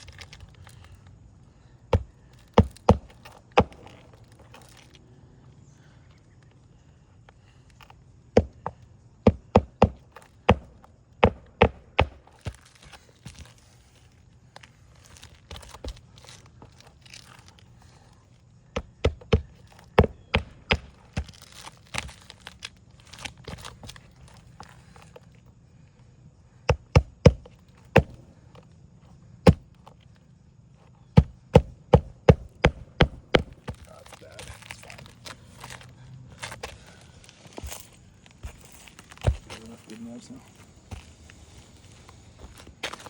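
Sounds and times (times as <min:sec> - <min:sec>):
hammer striking roofing nails: 0:01.9 - 0:04.0, 0:08.4 - 0:12.7, 0:18.7 - 0:22.2, 0:26.7 - 0:28.3, 0:29.4 - 0:29.7, 0:31.2 - 0:33.9.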